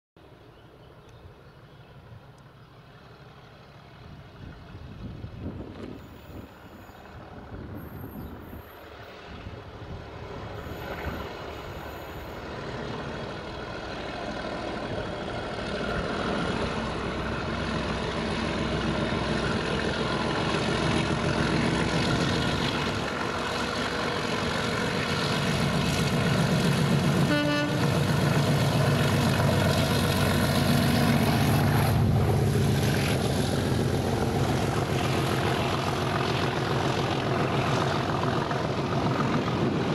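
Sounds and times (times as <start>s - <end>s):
diesel locomotive engine running: 1.3s - 39.9s
train horn toot: 27.1s - 28.1s.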